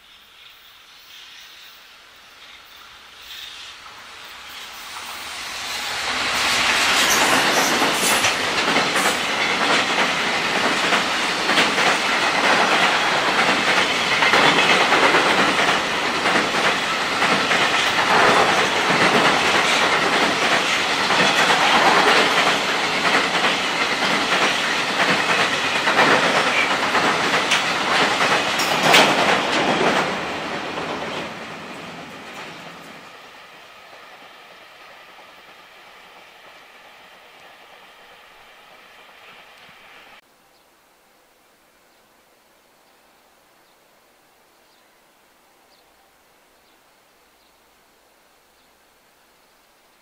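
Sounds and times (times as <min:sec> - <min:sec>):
steel wheels rushing on rail: 0:00.4 - 0:40.2
clickety-clack over rail joints: 0:06.4 - 0:33.0.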